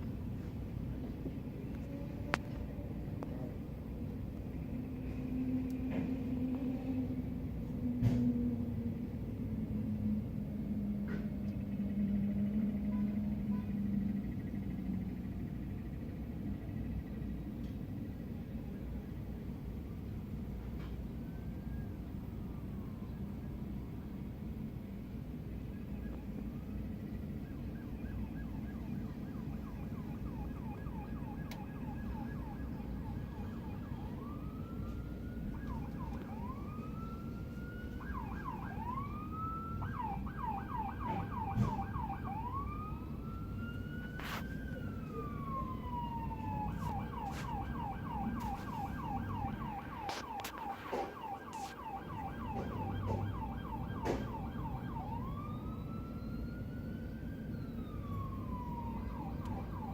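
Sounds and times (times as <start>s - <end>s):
street traffic rumble: 0.0s - 59.9s
police siren yelping and wailing: 20.4s - 59.9s.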